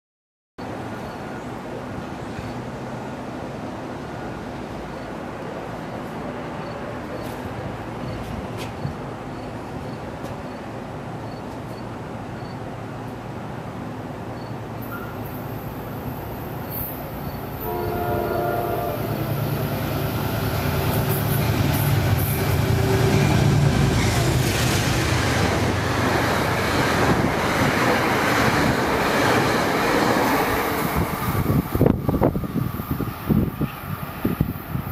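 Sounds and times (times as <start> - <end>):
train passing at speed: 0.6 - 34.9
train horn chord: 17.6 - 19.7
wind buffeting microphone: 20.6 - 34.9.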